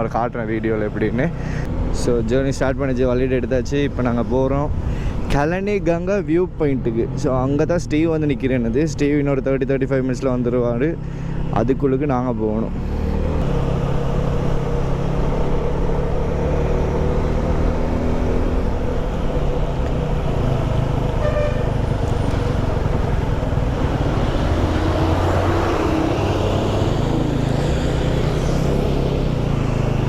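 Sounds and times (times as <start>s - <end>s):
vehicle engine and road noise: 0.0s - 30.0s
car horn toot: 21.2s - 22.5s.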